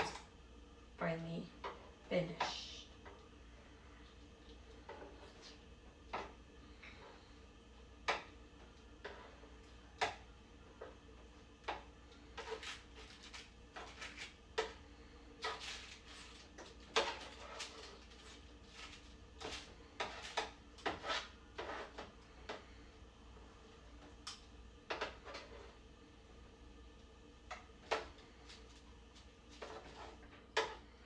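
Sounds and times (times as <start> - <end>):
clicks and knocks on a baking tray: 8.0 - 8.4.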